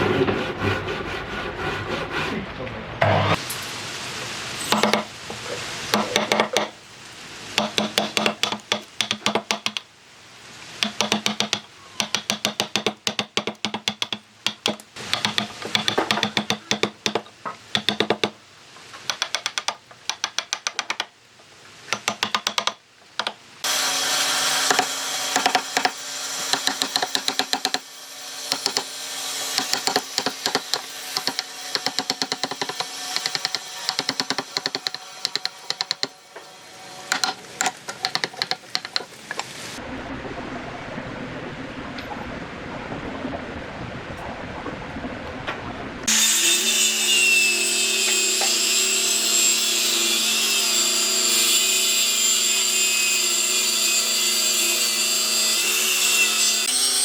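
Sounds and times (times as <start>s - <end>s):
steady hiss: 3.4s - 39.8s
rapid tapping and knocking: 5.9s - 6.8s, 7.6s - 9.9s, 10.8s - 18.4s, 19.0s - 21.2s, 21.9s - 23.4s, 24.7s - 27.8s, 28.5s - 28.9s, 29.6s - 36.2s, 37.1s - 39.4s.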